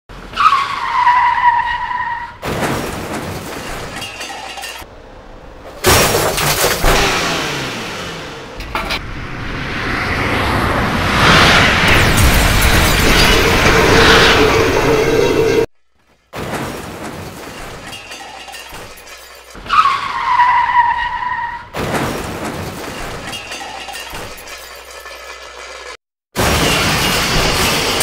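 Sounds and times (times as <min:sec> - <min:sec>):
glass breaking and shattering: 0:05.8 - 0:07.2, 0:11.9 - 0:13.8, 0:21.8 - 0:25.3, 0:26.4 - 0:28.0.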